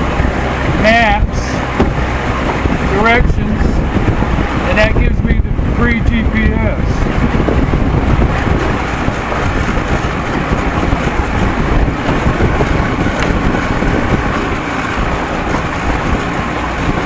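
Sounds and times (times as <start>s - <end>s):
outboard motor running: 0.0s - 17.0s
water rushing past hull: 0.0s - 17.0s
wind buffeting microphone: 0.0s - 17.0s.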